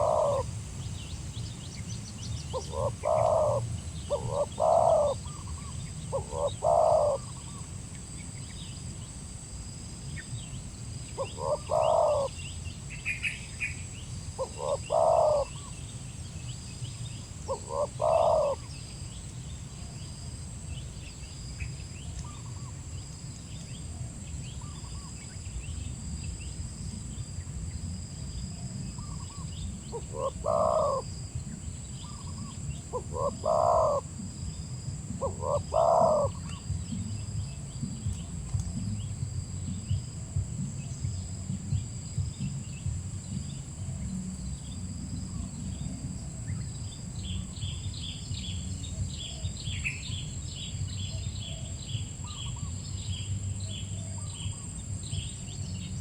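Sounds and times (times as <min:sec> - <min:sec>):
dove cooing: 0:00.0 - 0:00.6, 0:02.4 - 0:07.6, 0:11.2 - 0:13.7, 0:14.3 - 0:15.8, 0:17.4 - 0:18.8, 0:28.9 - 0:31.4, 0:32.0 - 0:46.6
small birds chirping: 0:00.0 - 0:56.0
low rumble: 0:36.3 - 0:56.0.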